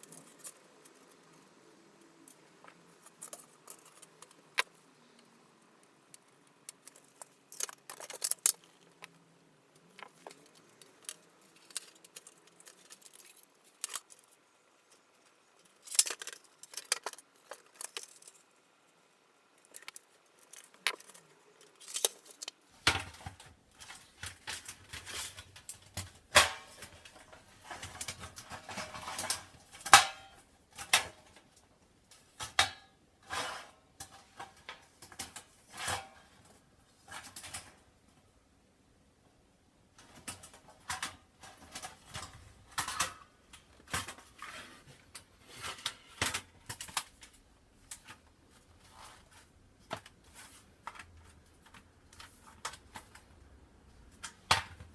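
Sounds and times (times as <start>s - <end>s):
thin metal parts clinking: 6.7s - 9.1s.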